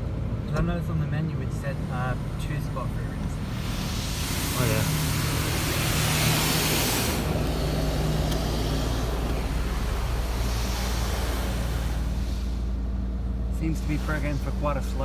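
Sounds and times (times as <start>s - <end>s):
continuous low hum: 0.0s - 15.0s
water spray hissing: 3.4s - 15.0s.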